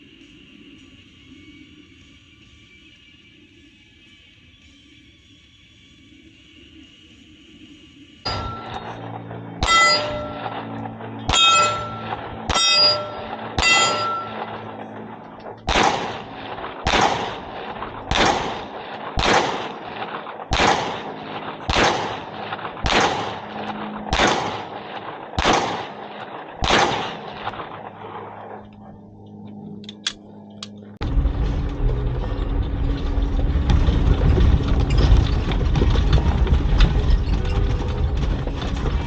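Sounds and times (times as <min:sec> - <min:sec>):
steel target clanging: 0:08.3 - 0:21.1
gunshots: 0:08.3 - 0:28.4.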